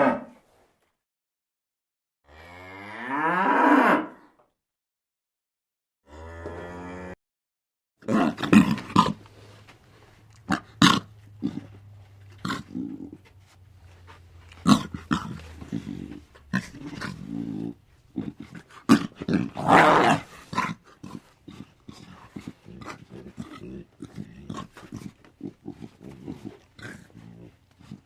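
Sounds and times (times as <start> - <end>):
animal harsh calls: 14.6 - 28.0.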